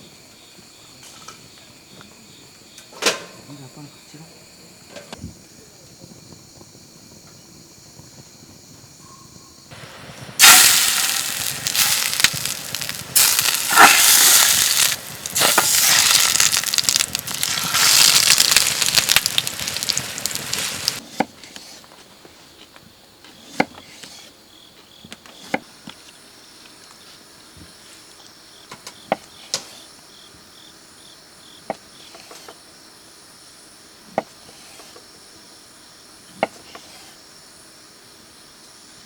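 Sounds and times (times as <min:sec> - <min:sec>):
campfire crackling and popping: 0:09.8 - 0:21.0.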